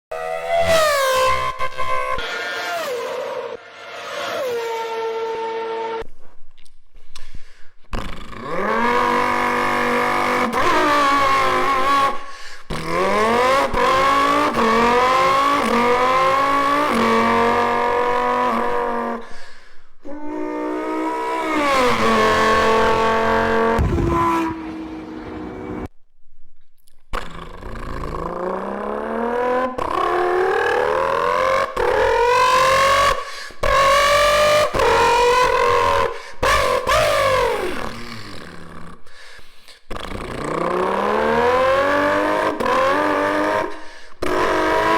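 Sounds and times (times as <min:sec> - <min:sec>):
car engines accelerating hard: 0:08.3 - 0:19.3, 0:20.4 - 0:25.9, 0:28.0 - 0:38.6, 0:39.9 - 0:44.9.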